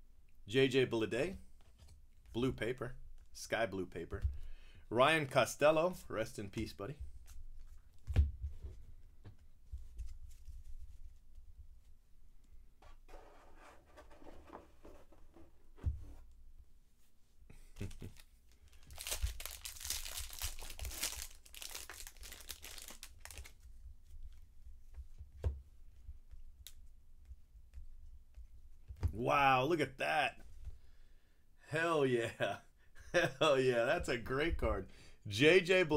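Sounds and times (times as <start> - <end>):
foil wrapper tearing and crinkling: 18.7 - 23.6.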